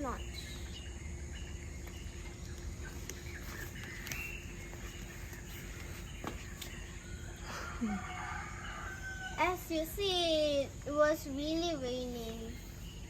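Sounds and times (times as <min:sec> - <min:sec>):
bird chirps: 0:00.0 - 0:13.0
insect calls: 0:00.0 - 0:13.0
low background noise: 0:00.0 - 0:13.0.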